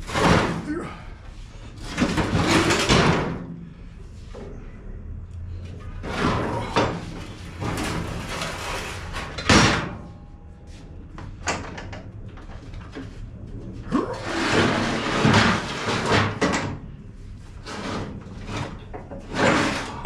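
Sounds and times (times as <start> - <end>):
tools scraping: 17.4 - 20.0.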